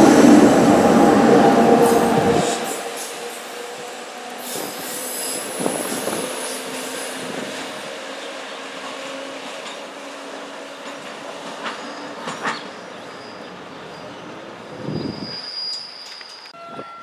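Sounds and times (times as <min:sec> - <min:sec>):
train rolling along track: 0:00.0 - 0:17.0
wheels squealing on rails: 0:00.0 - 0:17.0.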